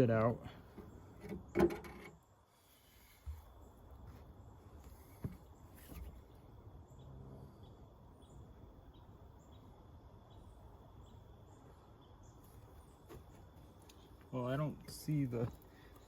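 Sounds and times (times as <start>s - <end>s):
high cricket chirp: 6.5s - 16.0s.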